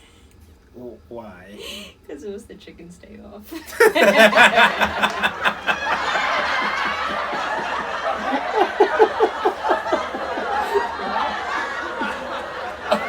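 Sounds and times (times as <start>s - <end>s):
people laughing: 3.5s - 13.0s.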